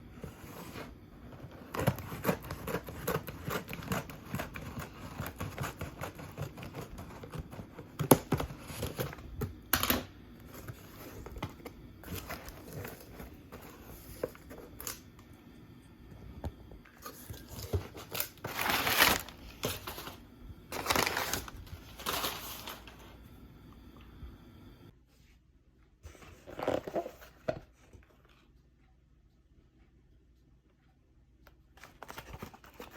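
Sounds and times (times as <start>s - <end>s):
crinkling rustling handling: 9.8s - 15.0s, 17.0s - 23.1s.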